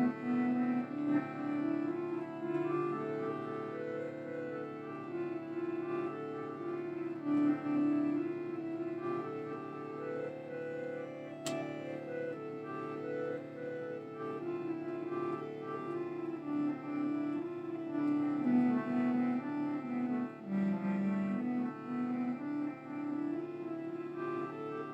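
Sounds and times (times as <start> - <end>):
slow instrumental melody: 0.0 - 24.9
sharp click: 11.4 - 11.7.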